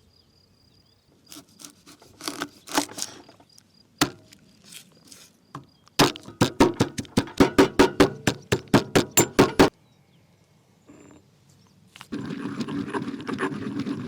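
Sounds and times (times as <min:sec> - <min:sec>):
chopping knocks on wood: 0:04.0 - 0:04.2, 0:06.0 - 0:09.7.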